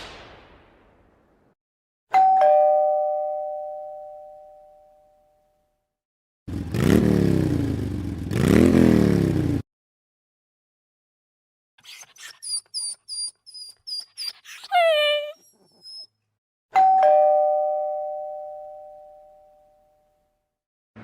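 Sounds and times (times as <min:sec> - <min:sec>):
two-tone doorbell chime: 0:02.1 - 0:05.8, 0:16.8 - 0:20.4.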